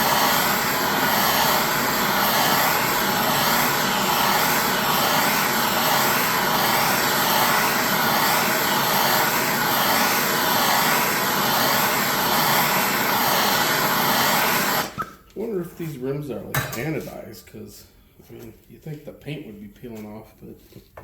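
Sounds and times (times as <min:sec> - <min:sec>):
propane torch hissing: 0:00.0 - 0:15.0.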